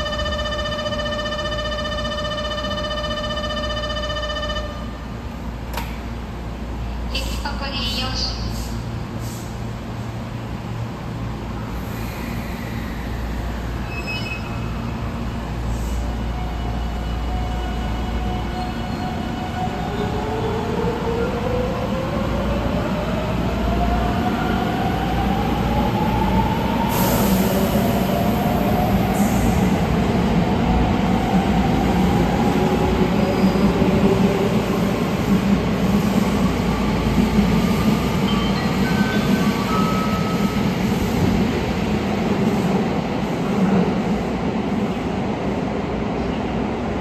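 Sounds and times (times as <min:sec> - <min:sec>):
train rumbling on rails: 0:00.0 - 0:47.0.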